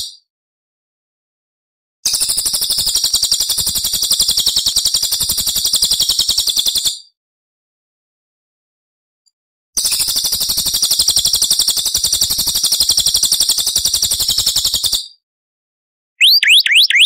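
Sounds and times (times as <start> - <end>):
songbird trilling: 16.2 - 17.0.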